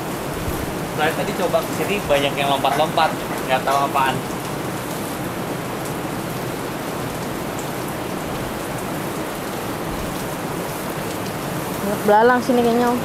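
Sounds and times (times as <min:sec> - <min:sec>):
steady hiss: 0:00.0 - 0:07.8.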